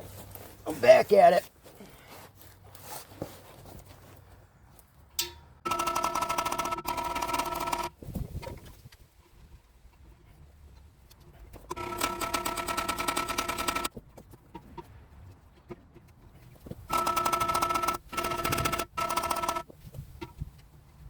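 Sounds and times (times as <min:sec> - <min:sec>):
power tool hammering buzz: 0:05.6 - 0:08.0, 0:11.7 - 0:13.9, 0:16.9 - 0:19.6.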